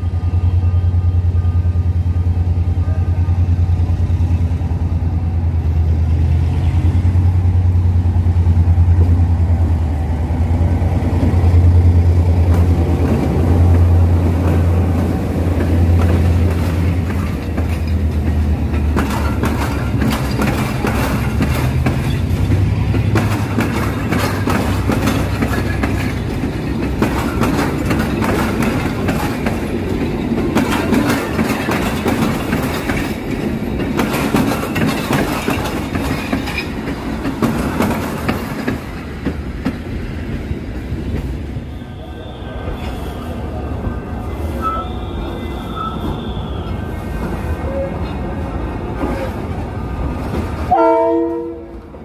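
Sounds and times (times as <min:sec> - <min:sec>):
deep train rumble: 0:00.0 - 0:52.0
train wheels clacking on track: 0:03.7 - 0:42.0, 0:48.8 - 0:52.0.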